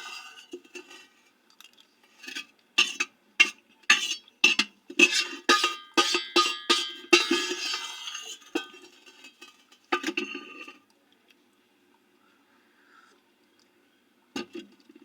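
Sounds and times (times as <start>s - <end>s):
utensil clinking against a dish: 2.8s - 10.7s.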